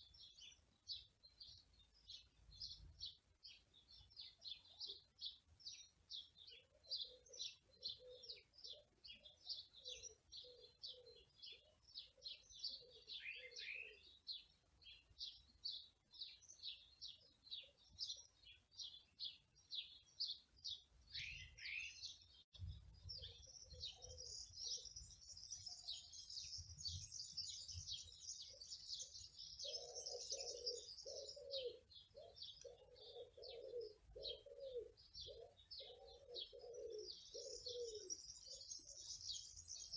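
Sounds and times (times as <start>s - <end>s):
songbirds chirping: 0.0s - 39.9s
dove cooing: 6.9s - 8.8s, 23.2s - 24.8s, 29.6s - 38.6s.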